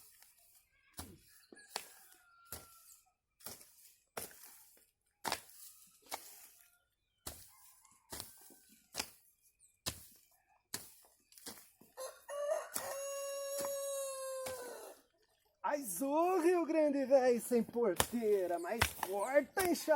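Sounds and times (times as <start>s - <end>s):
hoe chopping into soil: 1.0s - 6.6s, 7.2s - 7.5s, 8.1s - 11.8s, 12.7s - 14.9s, 18.0s - 19.9s.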